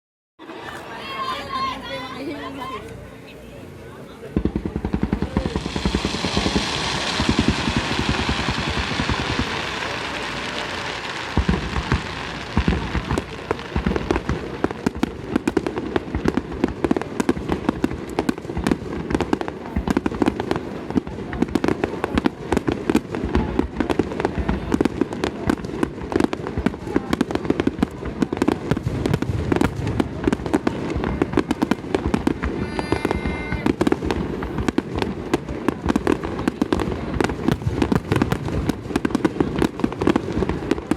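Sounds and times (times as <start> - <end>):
fireworks bursts: 4.0 - 40.9
loud hiss: 5.4 - 12.7.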